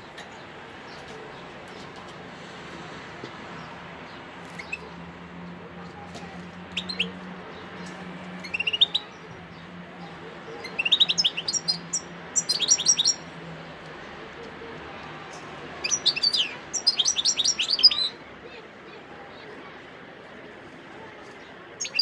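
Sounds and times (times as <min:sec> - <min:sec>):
goldfinch twittering: 0:08.4 - 0:09.1, 0:10.6 - 0:13.2, 0:15.8 - 0:18.1, 0:21.8 - 0:22.0.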